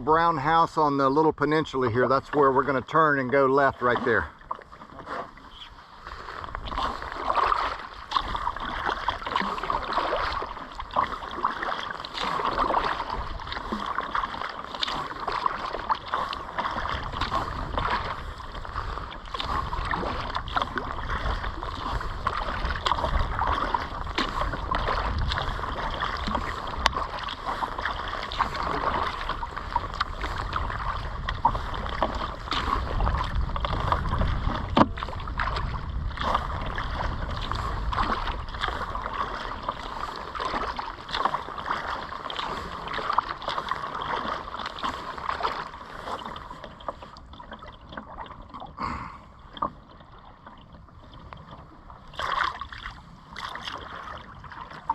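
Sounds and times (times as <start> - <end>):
paddle strokes splashing: 0.0 - 54.9
water rushing along hull: 0.0 - 54.9
wind rumble on microphone: 5.5 - 43.4.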